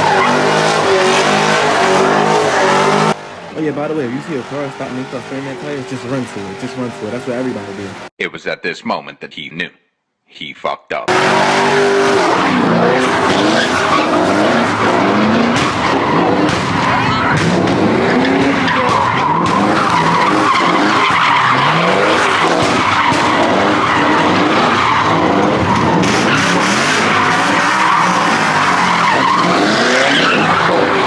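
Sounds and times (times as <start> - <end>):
tyre squeal: 0.0 - 3.2, 12.1 - 31.0
engine revving: 0.0 - 8.1, 11.1 - 31.0.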